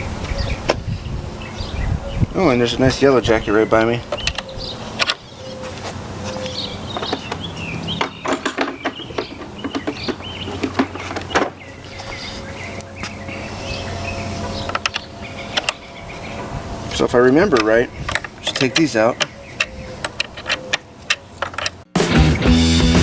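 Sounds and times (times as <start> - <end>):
birds chirping: 0.0 - 22.6
sharp clicks and knocks: 6.9 - 11.6, 14.4 - 15.8, 17.5 - 21.9.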